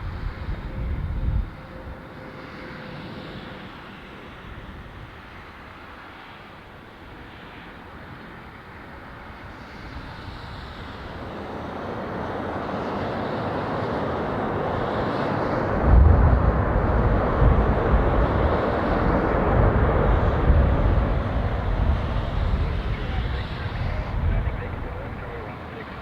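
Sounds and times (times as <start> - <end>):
jet engines roaring: 0.0 - 26.0
deep reverse thrust rumble: 15.8 - 25.6.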